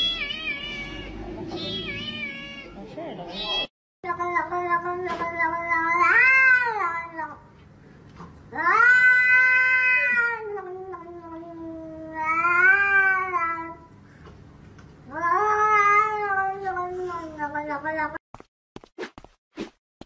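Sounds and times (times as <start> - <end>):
cat yowling: 0.0 - 3.7, 5.4 - 7.3, 8.5 - 13.8, 15.1 - 18.2.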